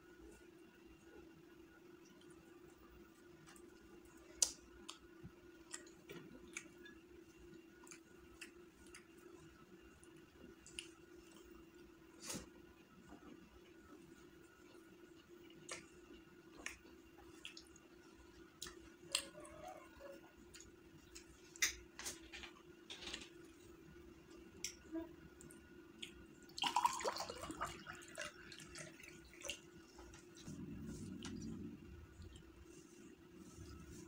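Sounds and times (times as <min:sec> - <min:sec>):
faint low hum: 0:00.0 - 0:34.0
chewing mouth clicks and smacks: 0:04.4 - 0:07.0, 0:07.8 - 0:09.2, 0:10.6 - 0:11.5, 0:15.6 - 0:17.9, 0:18.5 - 0:19.3.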